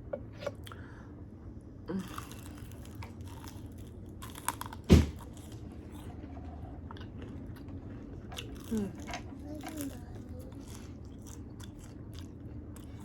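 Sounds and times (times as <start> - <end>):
crunching and chewing: 1.9 - 13.0
loud thump: 4.9 - 5.2.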